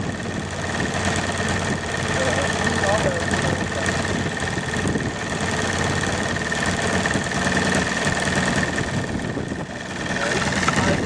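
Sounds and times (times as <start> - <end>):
model airplane motor whining: 0.0 - 11.0.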